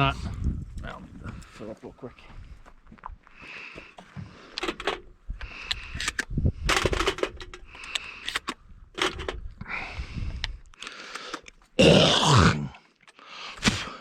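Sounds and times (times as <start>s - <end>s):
shells clicking into shotgun: 4.5s - 9.4s, 10.4s - 11.6s.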